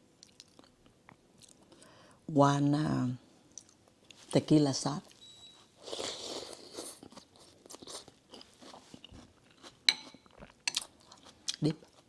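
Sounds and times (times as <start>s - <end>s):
person chewing: 5.9s - 12.0s.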